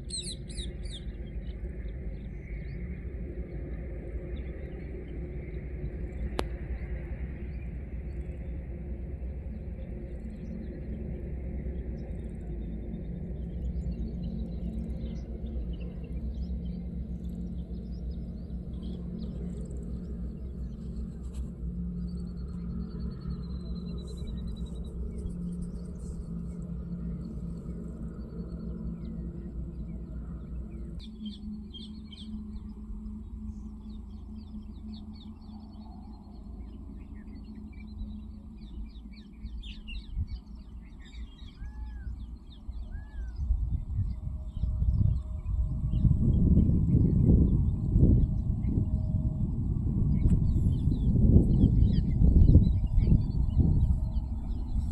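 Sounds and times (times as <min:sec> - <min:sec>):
steady low rumble: 0:00.0 - 0:54.9
faint bird chirps: 0:22.1 - 0:46.1.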